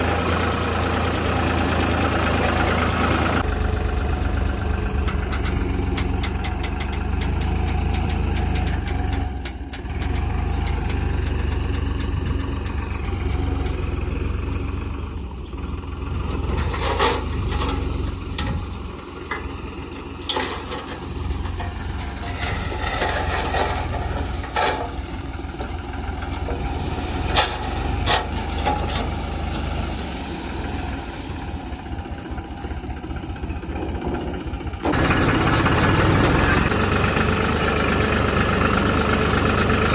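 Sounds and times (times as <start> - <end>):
diesel machinery running: 0.0 - 39.9
metallic clanks and knocks: 5.1 - 14.0, 16.3 - 30.2.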